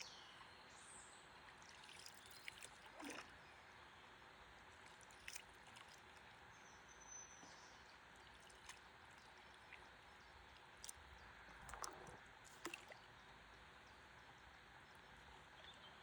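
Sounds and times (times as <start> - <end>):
faint river water hiss: 0.0 - 16.0
water drips and splashes: 1.4 - 3.4, 4.7 - 6.4, 8.2 - 13.1.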